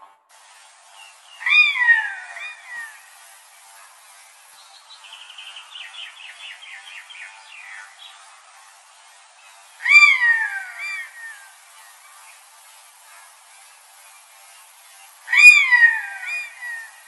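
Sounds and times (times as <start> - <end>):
bird chirps: 0.9 - 3.2, 4.5 - 8.4, 9.8 - 12.4, 15.3 - 17.0.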